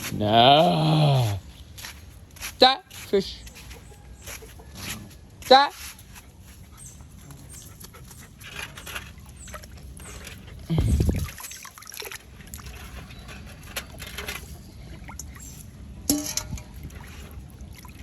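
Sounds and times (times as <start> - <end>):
water splashing and trickling: 0.0 - 18.0.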